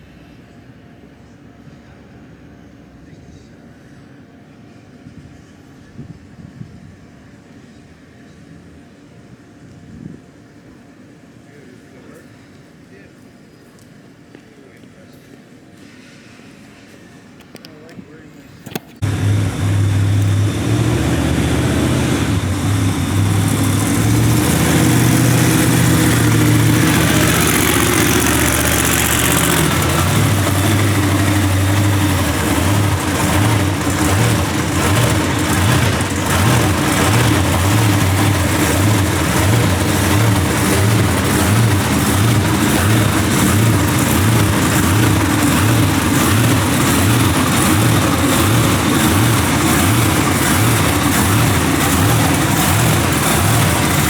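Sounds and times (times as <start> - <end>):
large engine running: 19.0 - 54.0.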